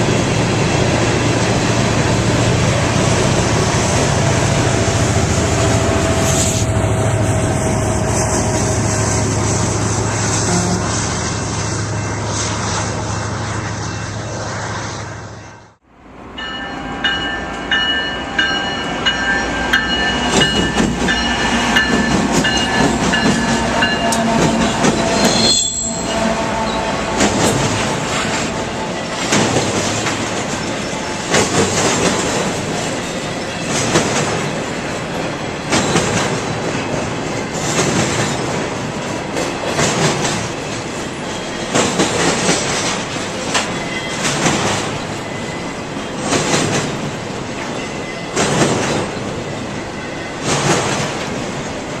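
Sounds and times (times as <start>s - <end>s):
train wheels on rail: 0.0s - 52.0s
high-pitched ringing tones: 16.4s - 26.9s
rail joints clacking: 16.4s - 52.0s.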